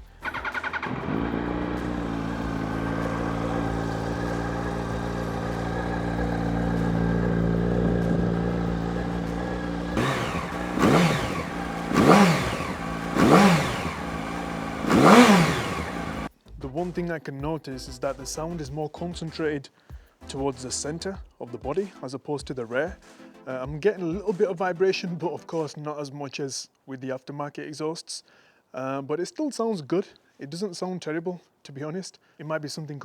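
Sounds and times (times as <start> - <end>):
motorcycle engine revving: 0.0 - 16.3
motorcycle engine starting and idling: 0.0 - 16.3.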